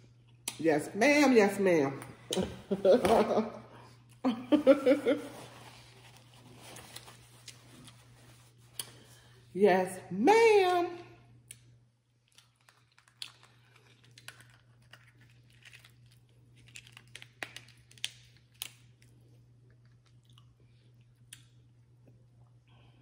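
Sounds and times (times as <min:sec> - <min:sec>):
steady low hum: 0:00.0 - 0:23.0
close chewing: 0:12.2 - 0:17.6, 0:19.6 - 0:22.2.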